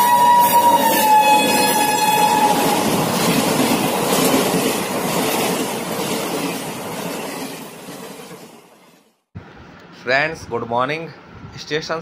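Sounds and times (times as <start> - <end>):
train horn: 0.0 - 2.9
train coaches rushing and rattling: 0.0 - 9.1.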